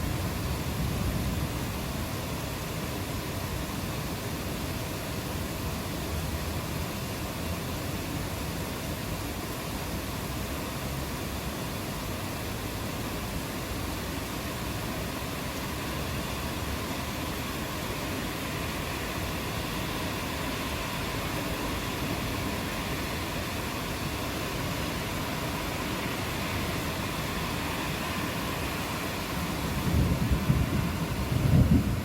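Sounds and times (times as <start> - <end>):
rain falling: 0.0 - 32.0
low rumble of thunder: 29.8 - 32.0.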